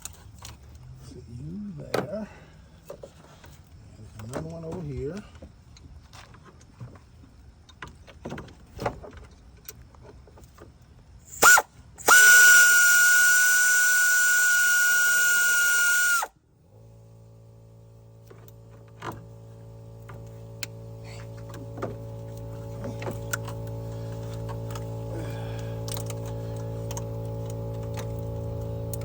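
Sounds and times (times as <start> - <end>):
low steady hum: 0.0 - 29.0
power tool high whine: 11.3 - 29.0.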